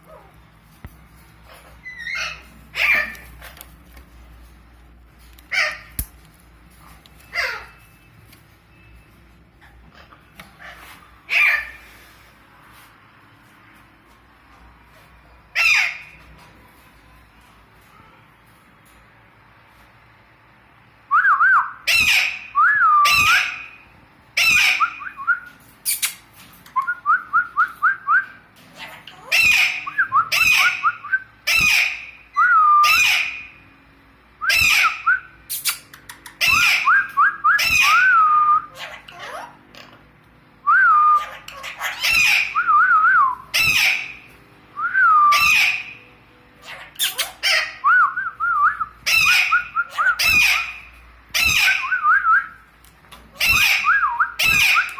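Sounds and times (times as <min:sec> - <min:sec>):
parakeet squawking: 0:01.4 - 0:03.5, 0:05.5 - 0:06.0, 0:07.3 - 0:07.8, 0:09.8 - 0:11.9, 0:15.5 - 0:16.2, 0:21.9 - 0:25.0, 0:28.8 - 0:32.2, 0:32.8 - 0:33.6, 0:34.5 - 0:37.0, 0:37.6 - 0:40.1, 0:41.2 - 0:42.7, 0:43.5 - 0:44.4, 0:45.3 - 0:46.0, 0:46.6 - 0:47.8, 0:49.0 - 0:52.0, 0:53.3 - 0:54.9.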